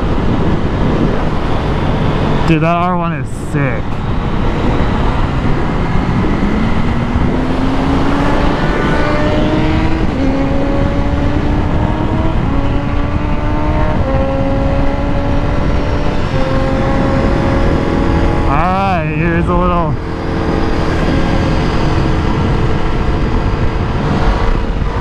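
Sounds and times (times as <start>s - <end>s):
wind and road rush: 0.0s - 25.0s
motorcycle engine shifting gears: 4.0s - 18.6s, 19.4s - 25.0s.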